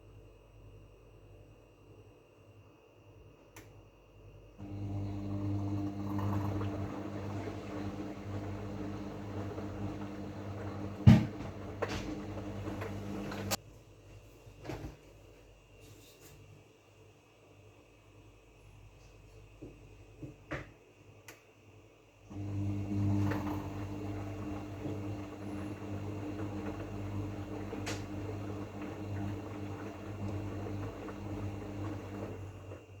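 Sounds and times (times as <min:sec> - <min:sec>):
washing machine motor hum: 0:04.6 - 0:13.6, 0:22.3 - 0:33.0
washing machine knock: 0:05.8 - 0:13.6.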